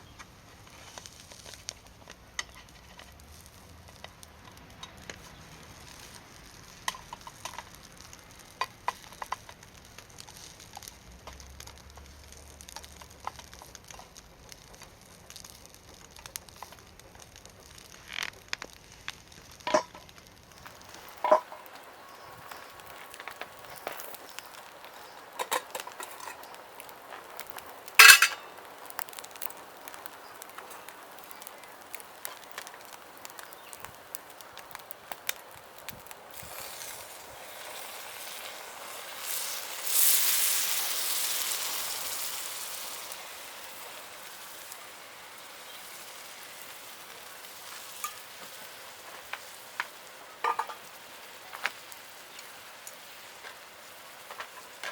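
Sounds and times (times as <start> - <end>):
food frying and sizzling: 0.0 - 54.9
utensils clinking on cookware: 28.0 - 28.5, 50.4 - 50.8.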